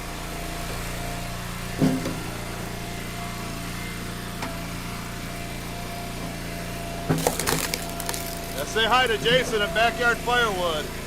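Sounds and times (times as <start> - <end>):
small gas engine running: 0.0 - 11.0.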